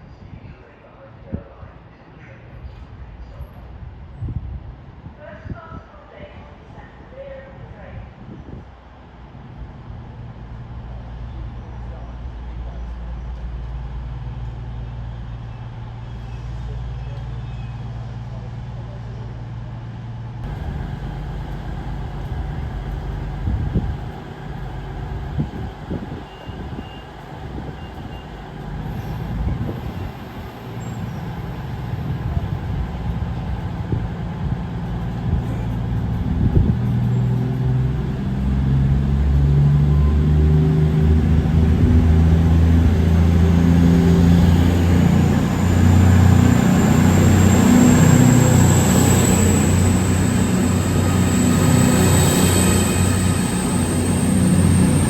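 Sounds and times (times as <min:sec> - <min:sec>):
diesel train engine drone: 0:20.1 - 0:55.0
faint rising whine: 0:20.4 - 0:36.0, 0:44.4 - 0:55.0.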